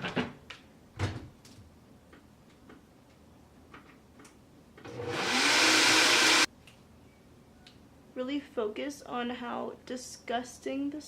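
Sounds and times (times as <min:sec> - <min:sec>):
blender motor running: 0:04.9 - 0:06.5.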